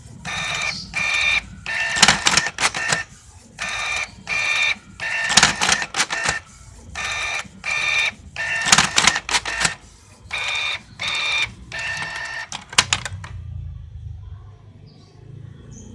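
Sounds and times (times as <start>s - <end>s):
small motor whirring: 0.2s - 6.4s, 7.0s - 12.5s
machine clicking: 0.3s - 6.4s, 7.0s - 13.3s.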